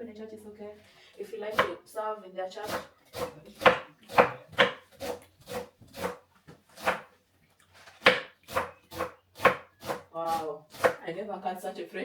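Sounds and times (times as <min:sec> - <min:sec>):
knife chopping on board: 0:02.6 - 0:06.2, 0:06.8 - 0:07.1, 0:08.0 - 0:11.0.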